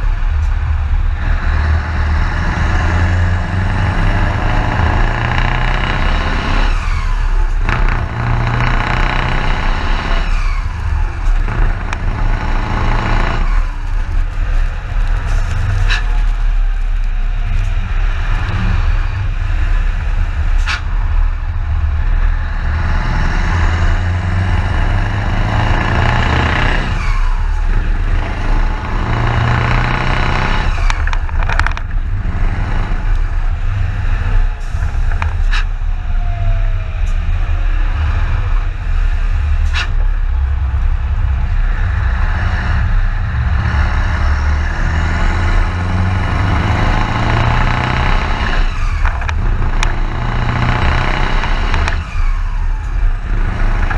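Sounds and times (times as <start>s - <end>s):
diesel truck engine droning: 0.0s - 53.9s.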